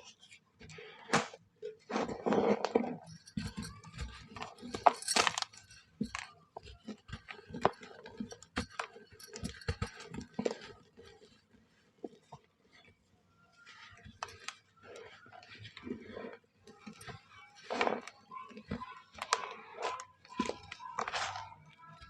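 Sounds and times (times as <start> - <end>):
dry mud shapes crumbling: 13.6 - 22.0.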